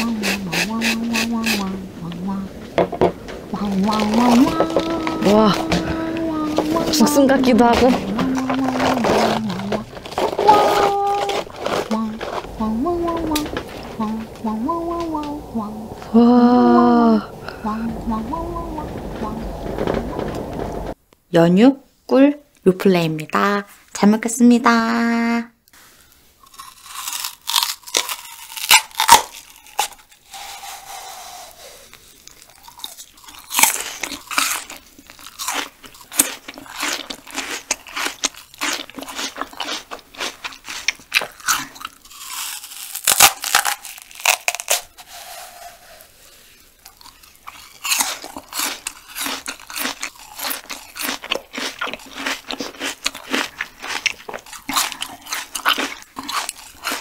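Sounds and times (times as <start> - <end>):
stringy fibres pulling apart: 3.5 - 15.4
crisp juicy chewing crunches: 26.4 - 31.0, 31.8 - 45.3, 46.8 - 57.0.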